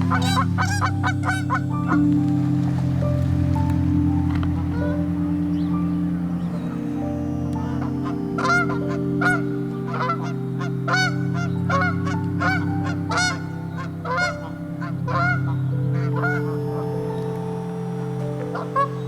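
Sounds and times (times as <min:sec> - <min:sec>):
goose honking: 0:00.0 - 0:02.0, 0:07.6 - 0:10.3, 0:10.9 - 0:16.4
steady low drone: 0:00.0 - 0:19.0.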